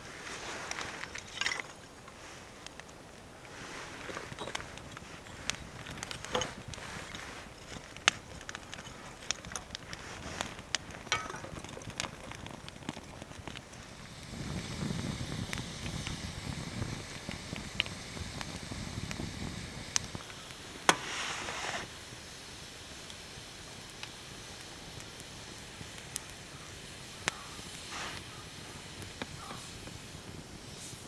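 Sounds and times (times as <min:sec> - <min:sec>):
rustling: 0:00.0 - 0:17.5, 0:20.1 - 0:22.0
wood fire crackling and popping: 0:00.0 - 0:31.0.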